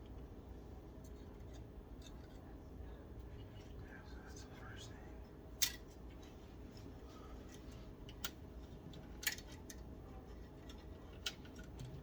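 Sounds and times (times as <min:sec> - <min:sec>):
cables and plastic parts clicking: 0:07.5 - 0:12.0.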